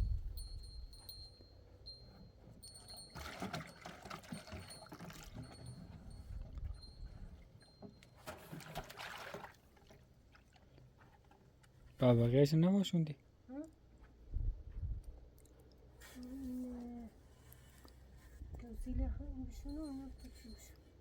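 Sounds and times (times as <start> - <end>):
water pouring: 8.4 - 10.0.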